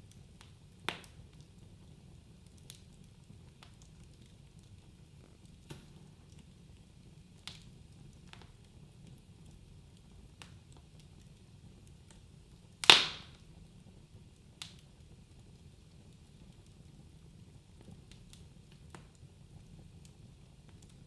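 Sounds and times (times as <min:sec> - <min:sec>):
wood fire crackling: 0:00.0 - 0:21.0
loud fire snap: 0:05.4 - 0:06.8, 0:11.8 - 0:13.5.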